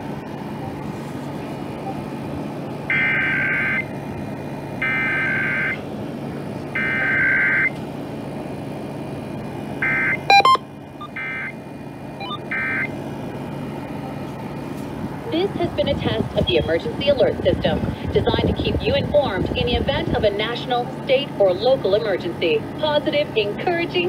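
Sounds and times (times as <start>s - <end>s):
steady hum: 0.0s - 24.0s
loud beep: 9.8s - 11.5s, 12.2s - 12.9s.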